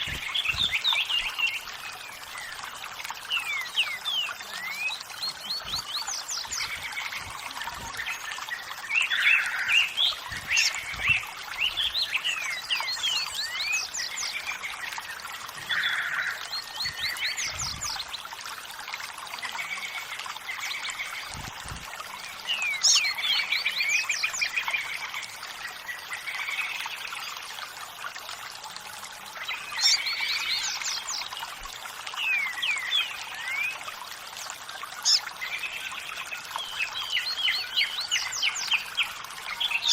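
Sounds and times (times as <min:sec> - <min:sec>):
running water: 0:00.0 - 0:39.9
birds chirping and singing: 0:22.5 - 0:24.9, 0:35.0 - 0:39.9.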